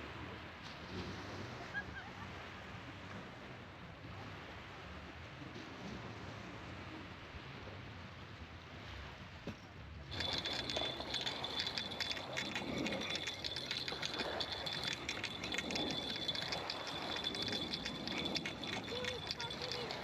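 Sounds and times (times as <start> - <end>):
outdoor ambience: 10.1 - 20.0
rapid crackling: 10.1 - 20.0.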